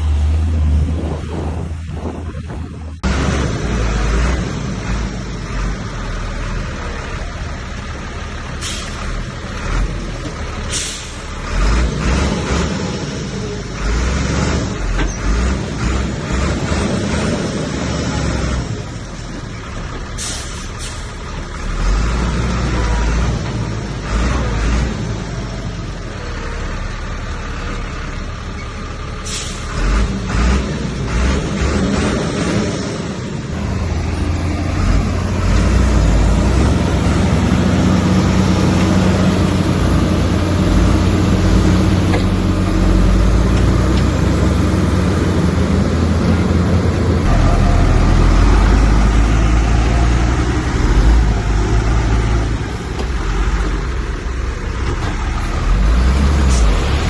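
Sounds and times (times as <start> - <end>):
bulldozer diesel engine: 0.0 - 57.0.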